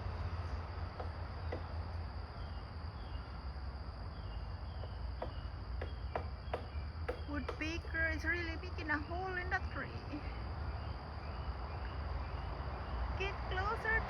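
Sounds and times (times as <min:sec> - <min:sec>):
high insect drone: 0:00.0 - 0:14.0
woodpecker pecking at tree: 0:00.8 - 0:02.0, 0:04.6 - 0:08.6.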